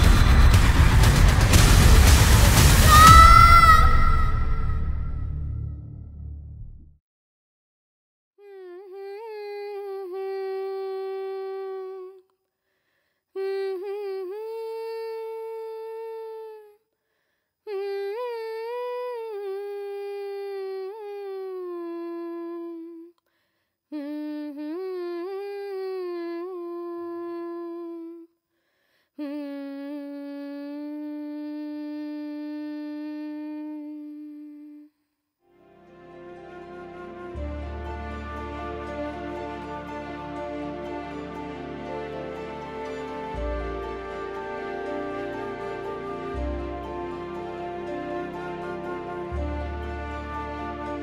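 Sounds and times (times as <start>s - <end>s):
person humming a melody: 8.4s - 12.2s, 13.4s - 16.8s, 17.7s - 23.2s, 23.9s - 28.3s, 29.2s - 35.0s.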